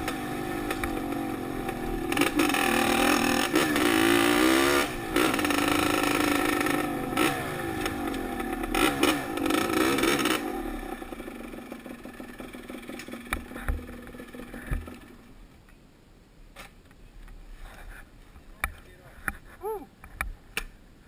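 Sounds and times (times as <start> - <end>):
dirt bike engine revving: 0.0 - 15.2.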